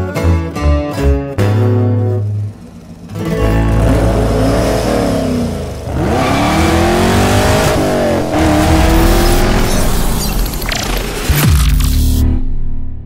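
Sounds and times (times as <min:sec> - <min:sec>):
car engine revving: 0:02.2 - 0:12.2.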